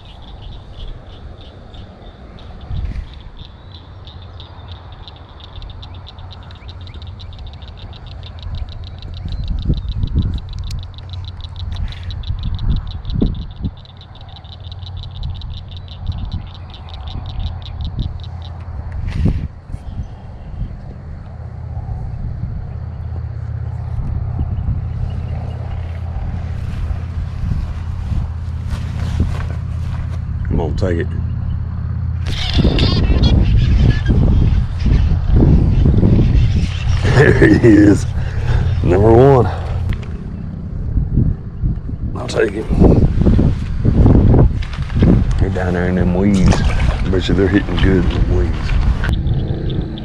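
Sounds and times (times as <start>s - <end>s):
wind buffeting microphone: 0.0s - 50.0s
frog calling in sharp clicks: 2.4s - 19.4s, 32.2s - 37.0s.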